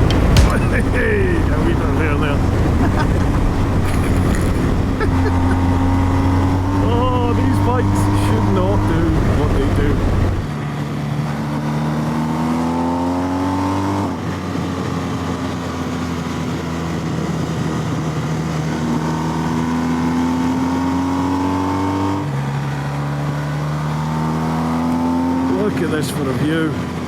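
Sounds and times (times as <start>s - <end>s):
wind rush: 0.0s - 10.5s
motorcycle engine accelerating: 0.0s - 25.5s.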